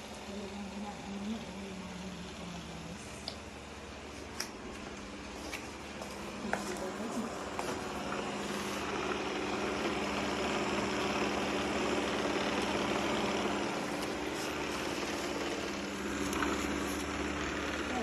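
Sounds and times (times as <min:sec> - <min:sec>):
robot vacuum motor whirring: 0:06.1 - 0:18.0.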